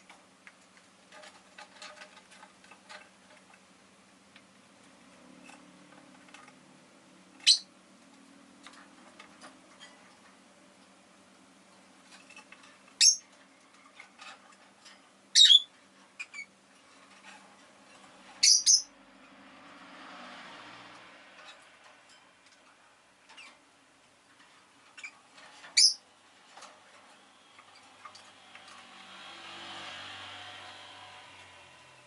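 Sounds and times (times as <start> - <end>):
bird high-pitched chirps: 7.4 - 7.7, 13.0 - 13.2, 15.3 - 16.5, 18.4 - 18.9, 25.8 - 26.0.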